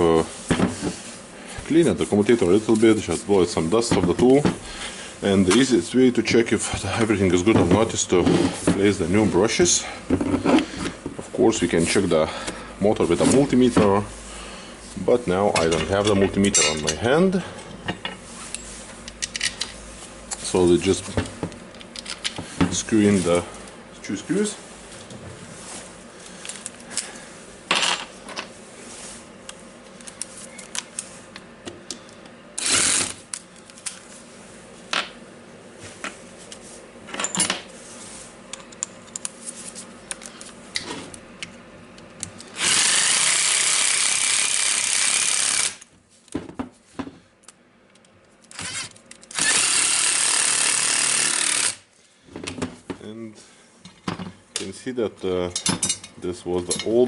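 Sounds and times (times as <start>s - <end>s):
clicks and knocks of tools handled: 18.0s - 22.5s, 29.4s - 32.4s, 38.5s - 39.5s, 40.1s - 42.5s, 47.4s - 49.4s
power driver driving screws: 32.6s - 33.2s, 42.6s - 45.8s, 48.5s - 51.8s.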